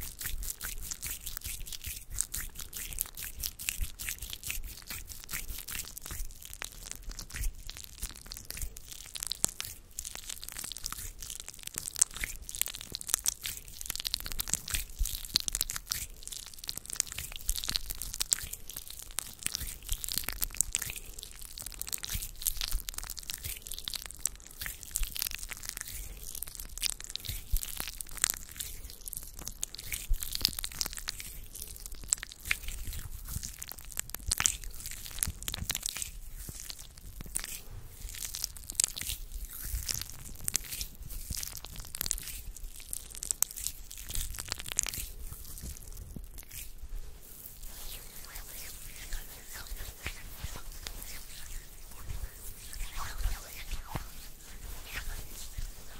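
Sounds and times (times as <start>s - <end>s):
hands rubbing near microphone: 46.6s - 55.9s.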